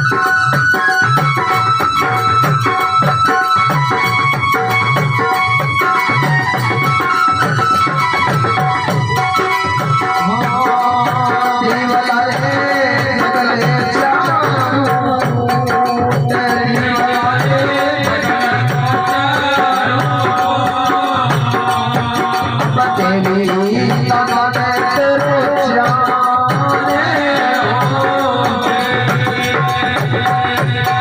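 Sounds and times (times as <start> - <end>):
jingling hand percussion: 0.0 - 31.0
steady drum beat: 0.0 - 31.0.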